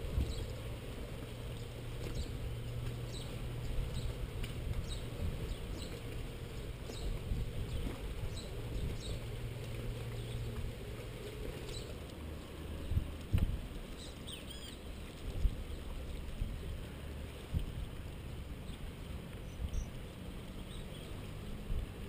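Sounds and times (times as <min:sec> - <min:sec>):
steady low rumble: 0:00.0 - 0:22.0
small bird chirping: 0:14.0 - 0:14.8.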